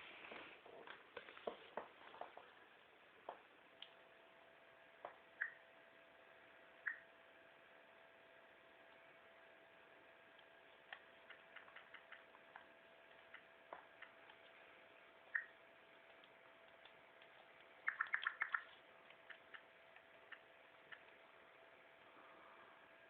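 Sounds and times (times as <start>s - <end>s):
low steady hum: 0.0s - 23.0s
light clicks and ticks: 16.0s - 21.2s.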